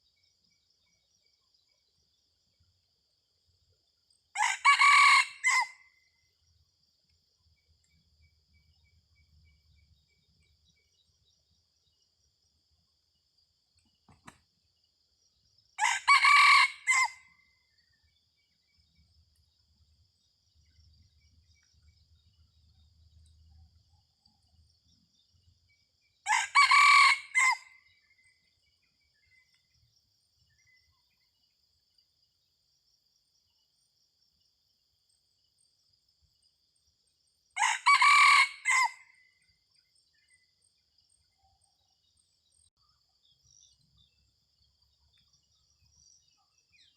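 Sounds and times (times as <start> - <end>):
rooster crowing: 4.4 - 5.8, 15.8 - 17.3, 26.3 - 27.8, 37.6 - 39.0.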